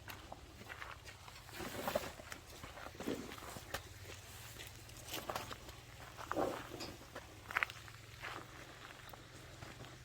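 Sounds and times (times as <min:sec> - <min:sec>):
footsteps on a path: 0:00.0 - 0:10.0.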